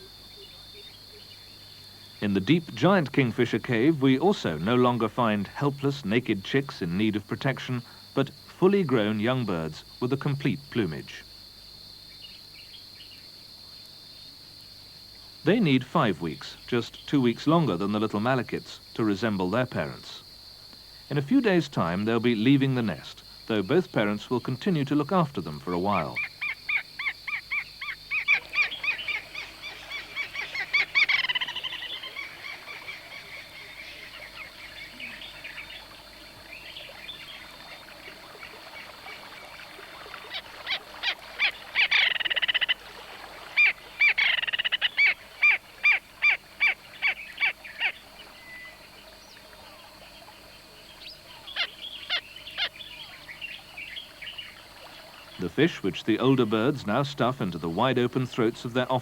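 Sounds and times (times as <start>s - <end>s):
kingfishers calling: 15.4s - 59.0s.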